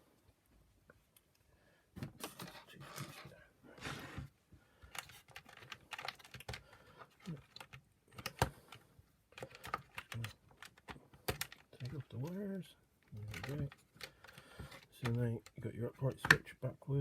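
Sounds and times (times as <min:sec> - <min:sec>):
clicking and rattling of plastic parts: 0:04.8 - 0:16.6.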